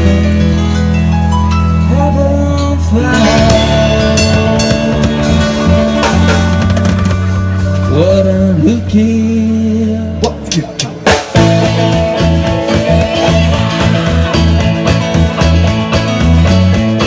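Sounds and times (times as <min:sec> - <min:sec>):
held guitar chord: 0:00.0 - 0:09.0
rock band playing: 0:00.0 - 0:17.0
drum hits: 0:03.1 - 0:08.8, 0:10.2 - 0:17.0.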